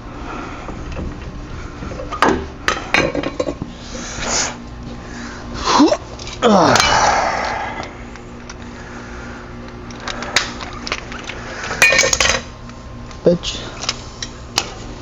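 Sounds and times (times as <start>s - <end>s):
metal tools clinking: 10.0s - 12.4s.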